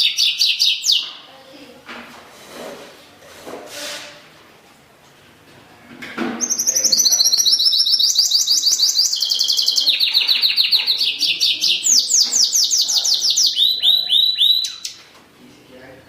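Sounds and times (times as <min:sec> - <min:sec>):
bird singing whistled notes: 0:06.4 - 0:15.0.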